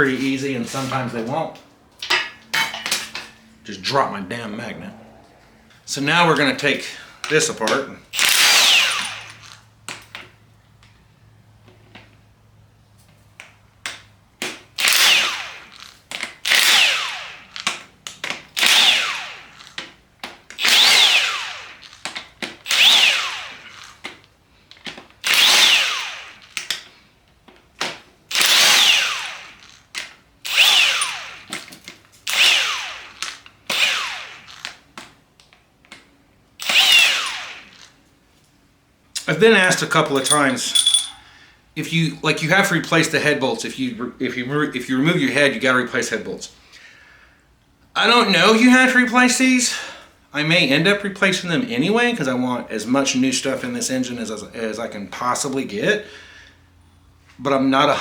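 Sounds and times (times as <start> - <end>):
power tool whirring: 8.2 - 9.6, 14.8 - 17.6, 18.6 - 19.8, 20.6 - 22.0, 22.7 - 24.0, 25.2 - 26.6, 28.3 - 29.7, 30.4 - 31.6, 32.2 - 34.6, 36.6 - 37.9.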